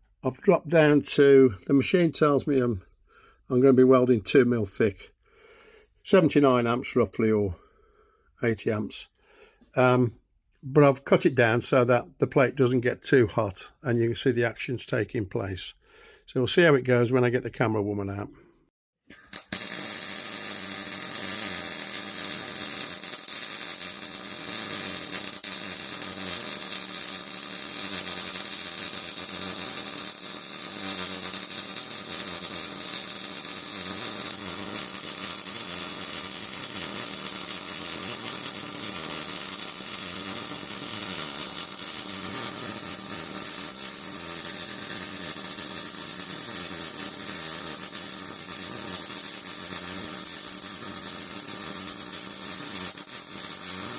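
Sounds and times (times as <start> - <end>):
welder arc sizzling hiss: 19.1 - 53.9.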